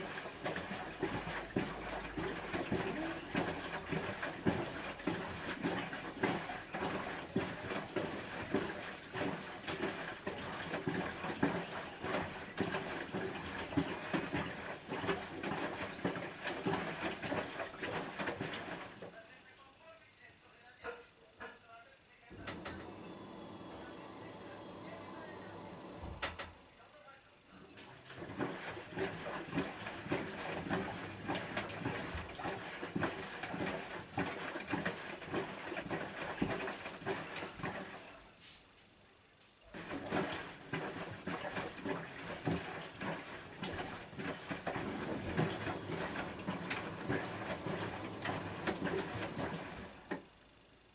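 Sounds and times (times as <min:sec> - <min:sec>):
washing machine drum turning: 0:00.0 - 0:19.0, 0:28.1 - 0:38.0, 0:39.7 - 0:50.3
laundry sloshing in water: 0:00.0 - 0:19.2, 0:27.8 - 0:38.3, 0:39.6 - 0:50.3.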